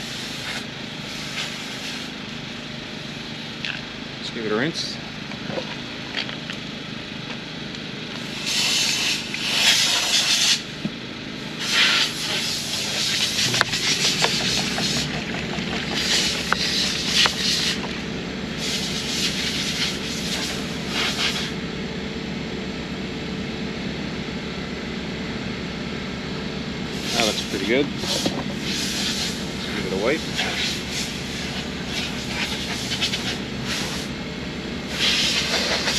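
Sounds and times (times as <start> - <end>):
water spraying onto headlight: 11.6 - 17.9, 18.6 - 21.5, 27.0 - 34.1, 34.9 - 35.9.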